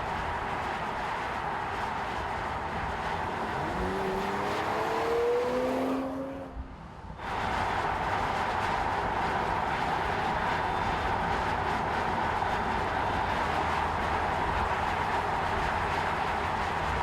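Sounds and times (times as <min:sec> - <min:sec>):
road noise: 0:00.0 - 0:17.0
car engine accelerating: 0:03.0 - 0:09.4.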